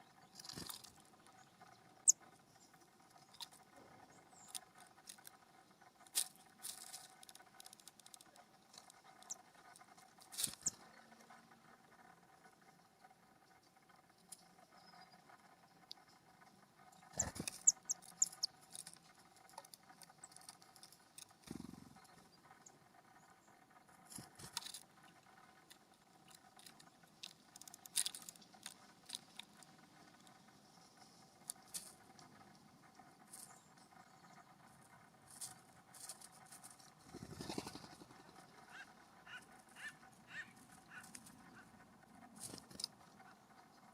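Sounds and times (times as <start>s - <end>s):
birds chirping: 0.0s - 43.9s
faint steady hum: 0.0s - 43.9s.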